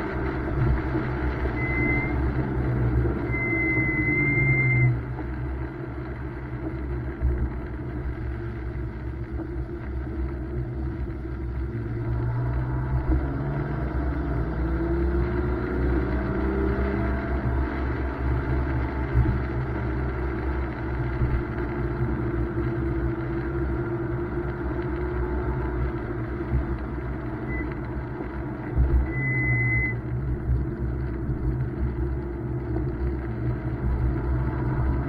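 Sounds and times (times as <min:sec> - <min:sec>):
tyre and road noise: 0:00.0 - 0:35.0
car engine revving: 0:09.9 - 0:35.0.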